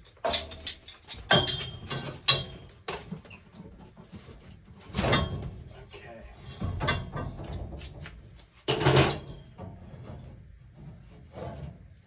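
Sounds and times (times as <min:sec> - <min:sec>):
tools and pipe fittings clanking: 0:00.0 - 0:03.6, 0:08.6 - 0:09.5.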